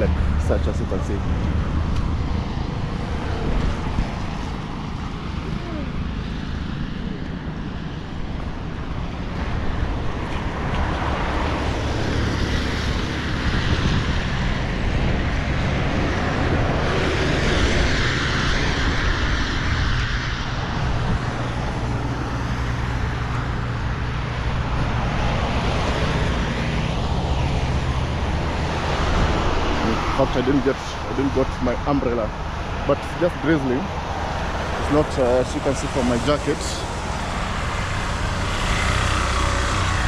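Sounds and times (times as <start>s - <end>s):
wind on microphone: 0.0s - 33.1s
road traffic noise: 0.0s - 40.0s
vehicle passing: 9.1s - 40.0s.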